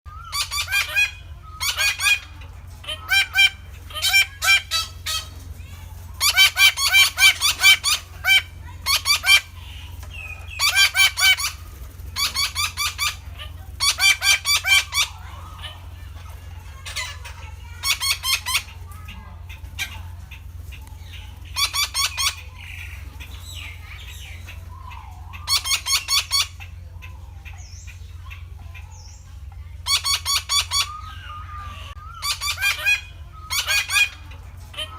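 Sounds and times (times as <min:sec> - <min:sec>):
parakeet calling harshly: 0:00.1 - 0:05.4, 0:06.2 - 0:11.6, 0:12.2 - 0:16.0, 0:16.8 - 0:19.2, 0:21.1 - 0:26.8, 0:29.8 - 0:34.9.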